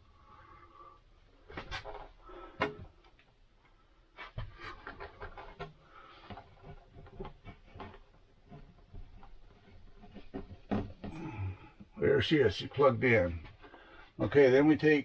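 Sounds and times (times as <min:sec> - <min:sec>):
small clicks and knocks: 0:01.5 - 0:12.0
heavy breathing: 0:11.1 - 0:12.0, 0:13.5 - 0:14.2.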